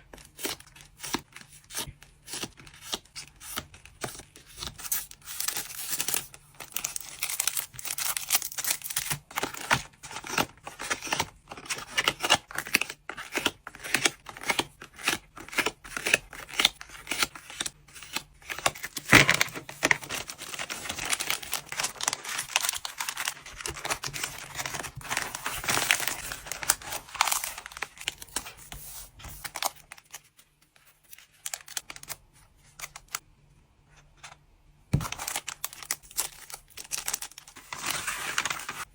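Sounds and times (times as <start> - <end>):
packing wrapping crinkling: 4.6 - 11.7, 18.5 - 30.3, 35.0 - 38.9.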